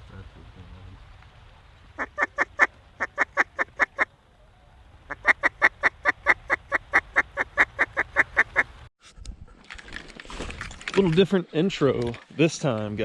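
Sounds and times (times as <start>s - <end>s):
duck quacking: 5.1s - 8.7s.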